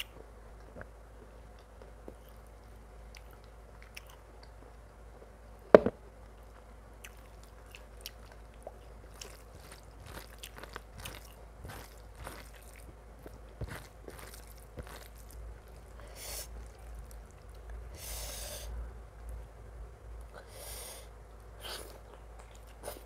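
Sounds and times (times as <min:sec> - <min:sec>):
chewing and mouth sounds: 0:00.0 - 0:05.0, 0:06.4 - 0:17.9, 0:21.6 - 0:23.0
sharp crunch: 0:09.2 - 0:15.8.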